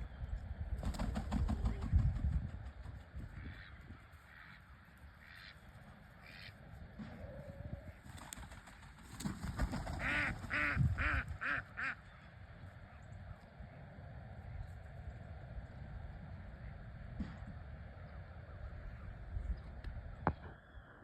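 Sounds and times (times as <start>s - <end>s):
duck quacking: 3.2s - 6.6s, 10.0s - 12.2s.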